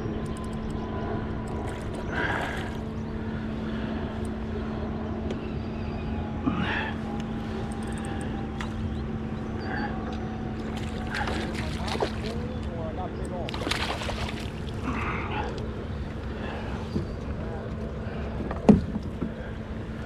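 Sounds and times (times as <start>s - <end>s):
low hum: 0.0s - 20.0s
river current rushing: 13.5s - 14.7s.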